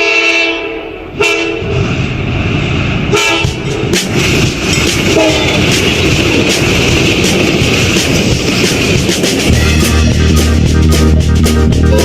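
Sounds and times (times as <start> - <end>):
train horn: 0.0 - 1.7, 3.1 - 3.6, 5.1 - 5.7, 9.5 - 10.5
moving train rumbling: 0.0 - 12.0.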